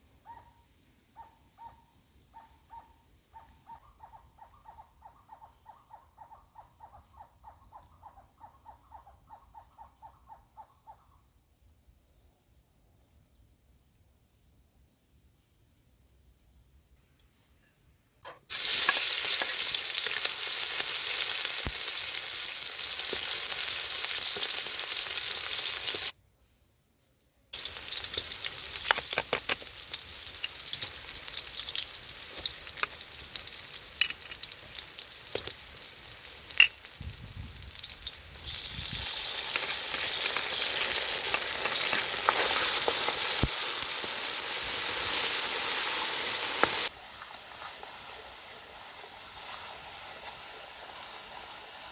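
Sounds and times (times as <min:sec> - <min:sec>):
food sizzling in hot oil: 0:18.5 - 0:26.2, 0:27.6 - 0:47.0.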